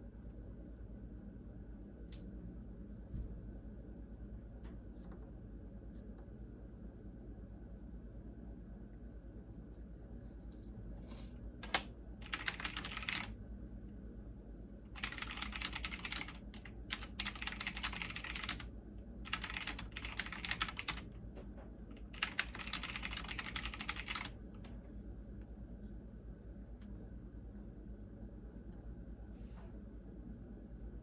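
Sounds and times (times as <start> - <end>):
computer keyboard typing: 11.7 - 13.4, 15.0 - 18.7, 19.3 - 21.1, 21.9 - 24.4.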